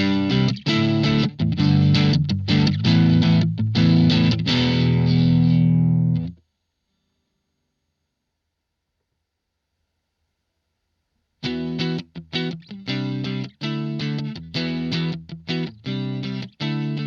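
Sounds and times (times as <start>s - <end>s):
distorted electric guitar chords: 0.0s - 6.4s, 11.4s - 17.0s.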